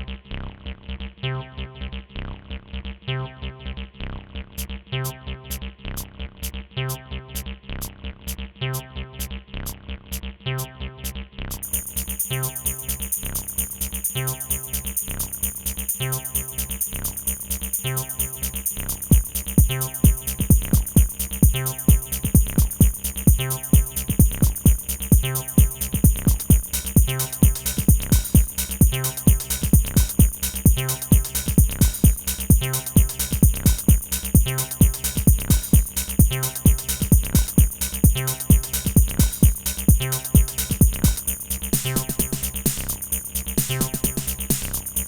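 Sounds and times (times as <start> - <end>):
ticking hi-hats: 11.5 - 45.0
heavy kick drum: 11.6 - 45.0
looping synth sequence: 11.6 - 45.0.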